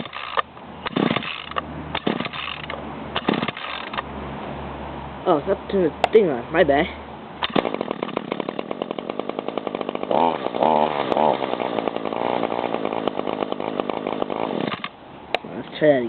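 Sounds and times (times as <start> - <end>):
string trimmer engine starting: 0.0 - 4.0, 7.4 - 15.0.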